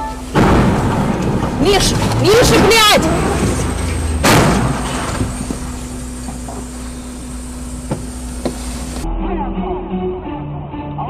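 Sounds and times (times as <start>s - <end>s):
car engine and road noise: 0.0s - 9.1s
faint knocks: 7.8s - 9.0s.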